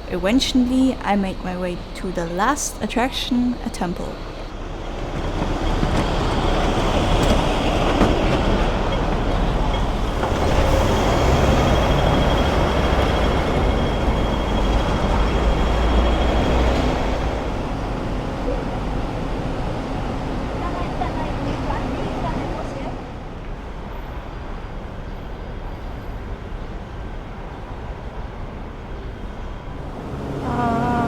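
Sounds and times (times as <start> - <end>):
faint high whine: 0.0 - 4.6
train running rumble: 0.0 - 20.6.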